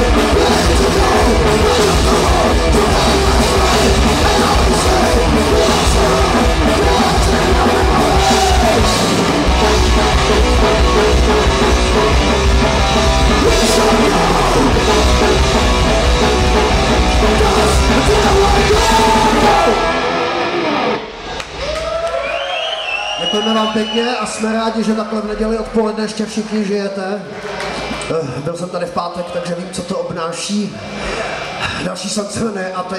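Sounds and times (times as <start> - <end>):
live punk rock band: 0.0 - 21.7.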